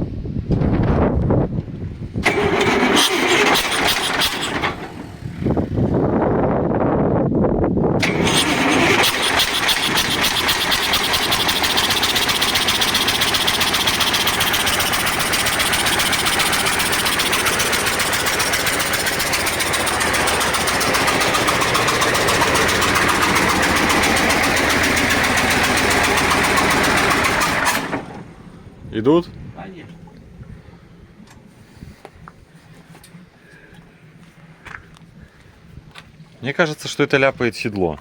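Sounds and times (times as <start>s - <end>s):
diesel engine running with knock: 2.2s - 5.4s, 8.0s - 28.4s.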